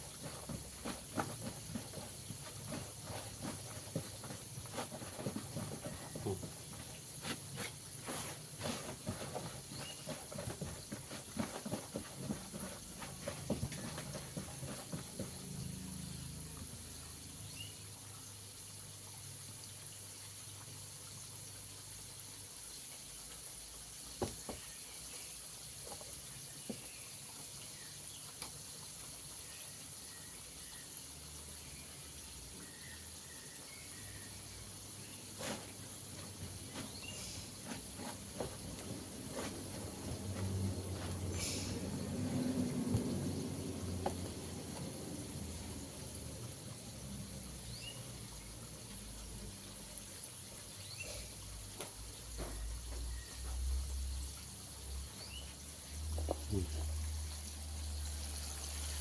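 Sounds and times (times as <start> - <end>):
chicken deep-frying in hot oil: 0.0 - 0.8, 5.6 - 8.8, 12.9 - 59.0
oil popping: 35.1 - 48.0.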